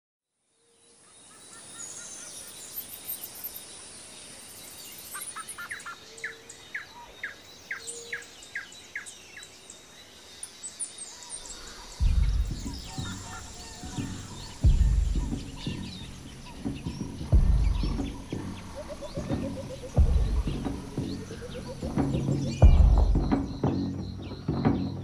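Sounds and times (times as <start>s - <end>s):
birds calling: 4.6s - 25.0s
steady high hiss: 7.4s - 25.0s.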